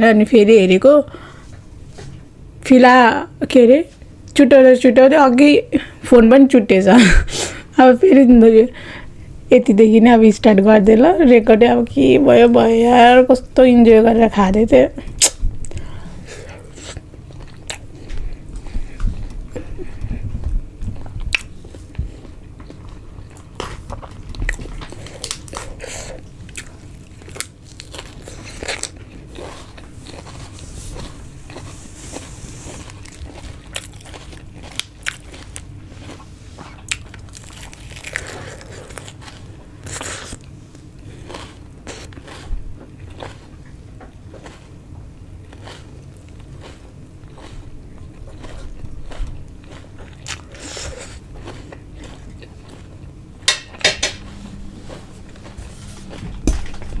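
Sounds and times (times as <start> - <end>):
chewing food: 16.6 - 53.5, 54.2 - 57.0.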